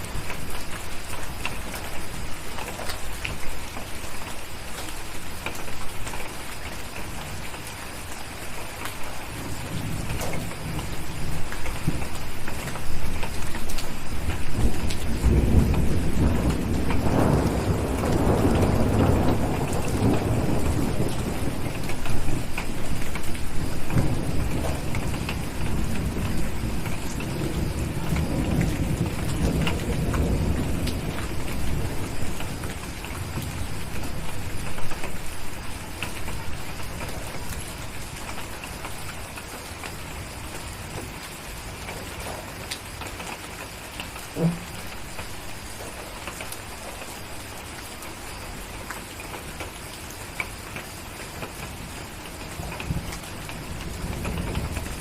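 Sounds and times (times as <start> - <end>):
steady rain: 0.0 - 55.0
rolling thunder: 14.0 - 38.2, 52.5 - 55.0.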